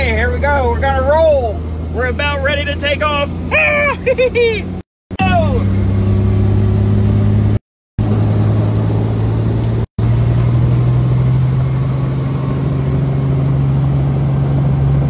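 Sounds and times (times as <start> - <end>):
helicopter engine and rotor drone: 8.0 - 15.0.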